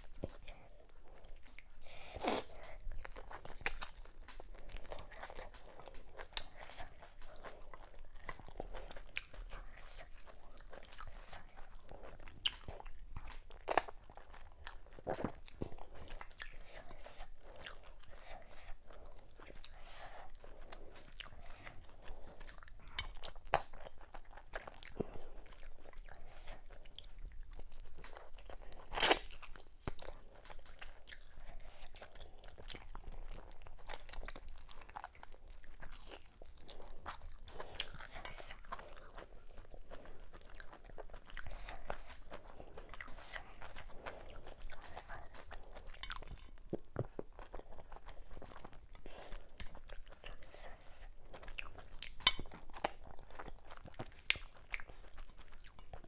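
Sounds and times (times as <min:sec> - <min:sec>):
person chewing and crunching: 0:00.0 - 0:56.0.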